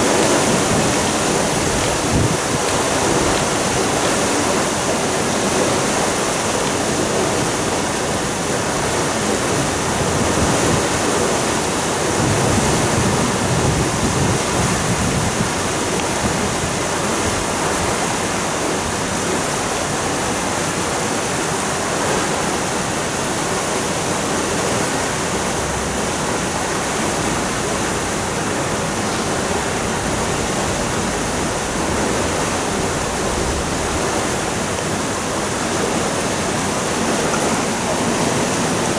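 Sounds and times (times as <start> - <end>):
water rushing through sluices: 0.0 - 38.9.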